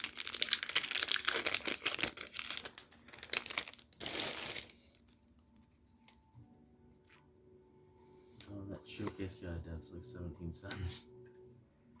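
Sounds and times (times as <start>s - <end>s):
plastic wrapper crinkling: 0.0s - 5.3s.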